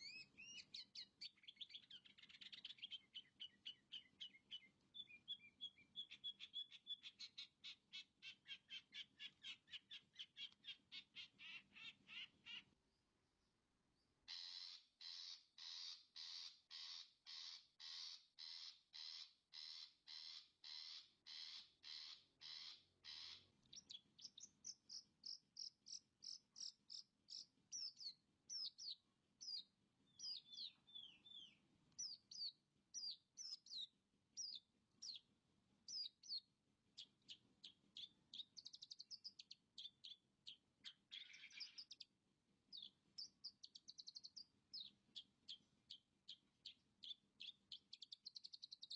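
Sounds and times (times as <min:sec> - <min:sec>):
bird song of chirps and whistles: 0:00.0 - 0:12.6, 0:14.3 - 0:35.3, 0:35.9 - 0:42.1, 0:42.7 - 0:48.9
bird harsh rasping calls: 0:00.0 - 0:12.7, 0:14.3 - 0:28.6, 0:40.8 - 0:42.0.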